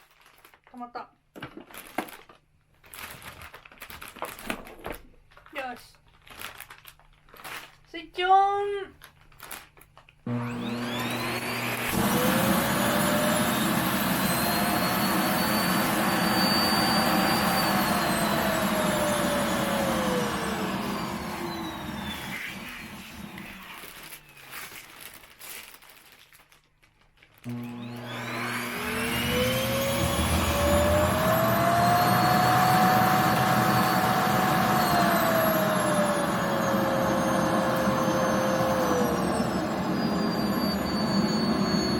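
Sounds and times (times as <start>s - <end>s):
vacuum cleaner whine: 10.3s - 24.4s, 27.4s - 41.9s.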